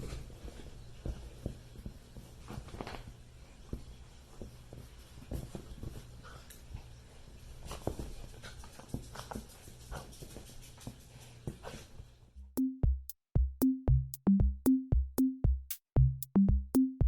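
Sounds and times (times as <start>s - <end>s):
dog moving with soft clicks: 0.0s - 7.0s.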